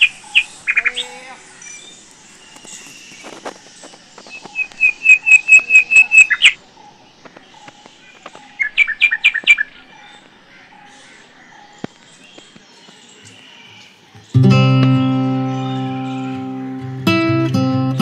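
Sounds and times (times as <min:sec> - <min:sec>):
bird calling high notes: 0:00.0 - 0:06.6, 0:13.3 - 0:17.1.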